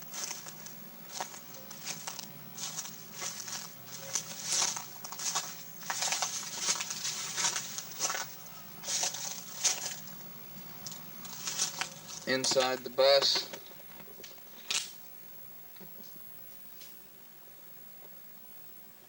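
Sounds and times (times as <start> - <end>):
footsteps crunching over debris: 0.0 - 15.0.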